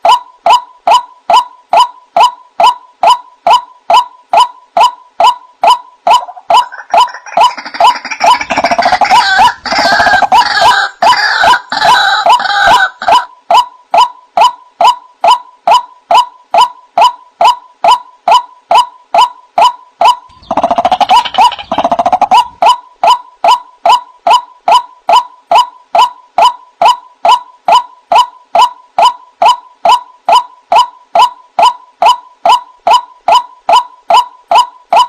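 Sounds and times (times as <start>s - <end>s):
waterhen calling: 6.1s - 13.3s, 20.3s - 23.2s.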